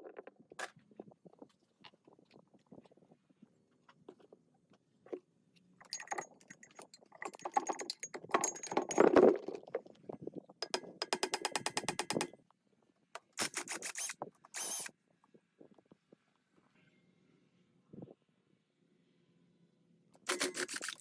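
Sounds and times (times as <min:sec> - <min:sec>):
rapid even clicking: 0:10.6 - 0:12.3.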